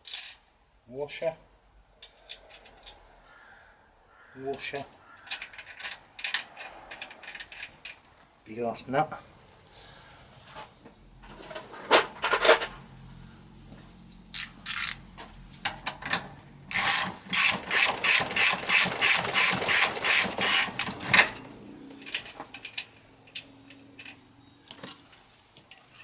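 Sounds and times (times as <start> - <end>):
ratchet handle clicking: 15.9 - 20.9.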